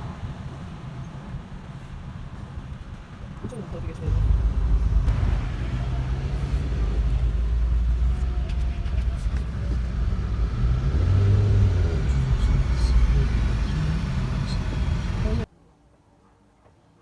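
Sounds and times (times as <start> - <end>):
car rumbling in motion: 0.0 - 15.5
faint engine hum: 3.2 - 15.5.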